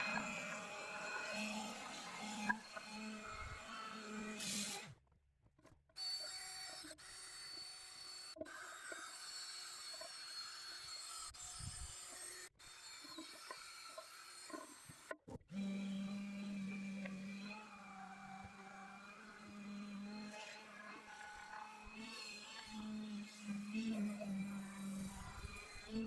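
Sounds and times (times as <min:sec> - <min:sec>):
power tool scrubbing metal wheel: 0:16.0 - 0:26.0.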